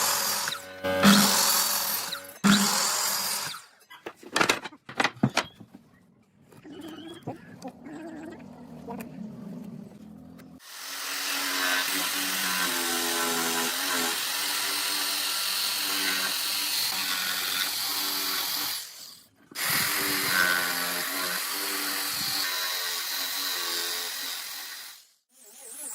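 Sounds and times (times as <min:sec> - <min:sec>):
power tool running: 0:00.0 - 0:03.7, 0:10.6 - 0:19.0.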